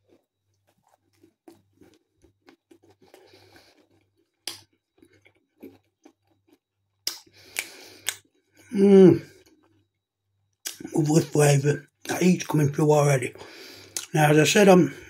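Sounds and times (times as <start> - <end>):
person chewing pizza: 0.0 - 10.9
wet mouth clicks and smacks: 4.3 - 8.3, 10.6 - 10.9, 13.9 - 14.1.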